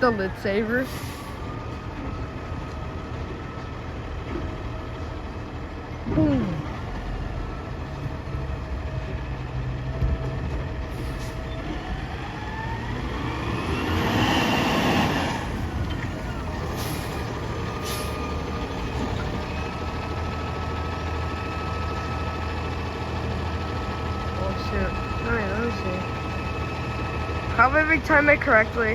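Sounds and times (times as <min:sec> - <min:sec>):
diesel truck engine revving: 0:00.0 - 0:28.9
air brake hiss: 0:11.0 - 0:11.4, 0:17.8 - 0:18.2.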